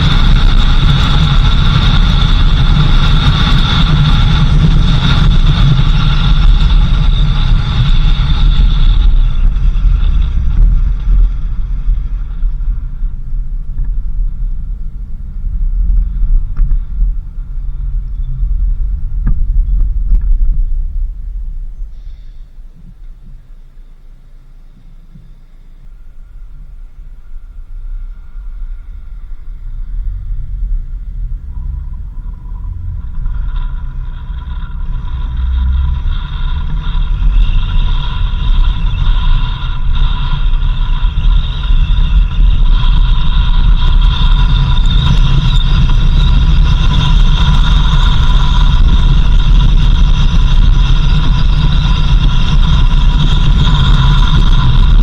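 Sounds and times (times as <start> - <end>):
vehicle driving on dirt road: 0.0 - 55.0.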